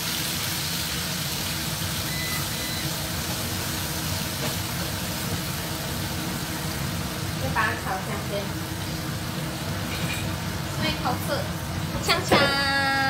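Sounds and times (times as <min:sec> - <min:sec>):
garlic sizzling in hot oil: 0:00.0 - 0:13.0
faint short beep: 0:02.1 - 0:02.9.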